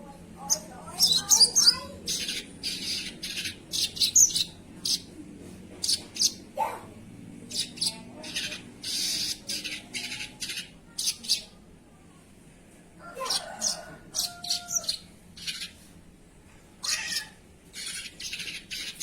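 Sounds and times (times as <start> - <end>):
bird making scratchy calls: 7.6 - 11.4, 16.8 - 19.0.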